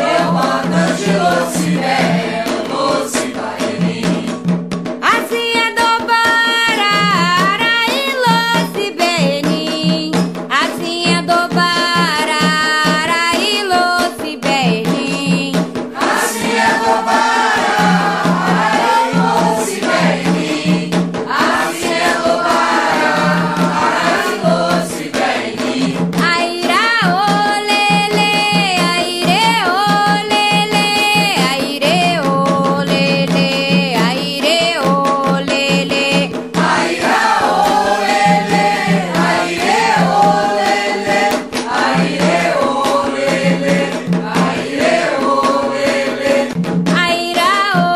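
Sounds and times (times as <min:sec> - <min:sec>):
chorus of voices chanting: 0:00.0 - 0:04.3, 0:16.0 - 0:26.1, 0:36.6 - 0:46.6
percussion: 0:00.0 - 0:47.9.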